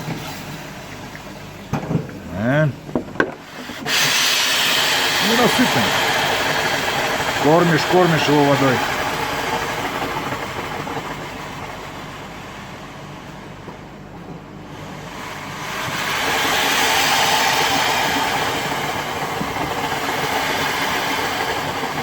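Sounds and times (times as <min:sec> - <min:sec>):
steam hissing from stove: 0:03.4 - 0:13.3, 0:14.6 - 0:22.0.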